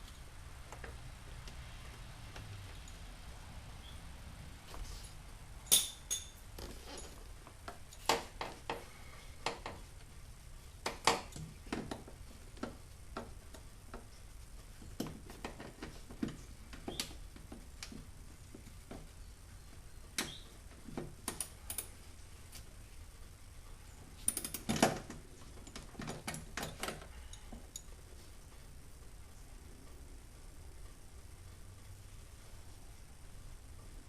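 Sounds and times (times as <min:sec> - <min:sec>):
hand tools clicking and knocking: 0:05.7 - 0:08.8, 0:24.2 - 0:27.9.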